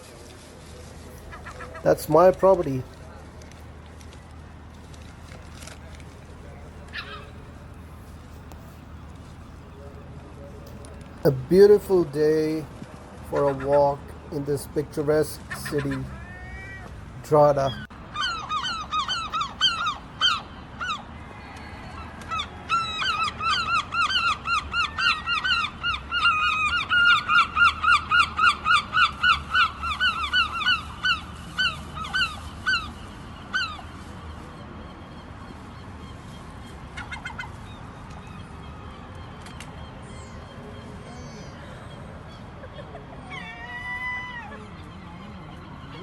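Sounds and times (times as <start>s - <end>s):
seagulls calling: 1.1s - 3.0s, 6.8s - 7.6s, 13.3s - 21.0s.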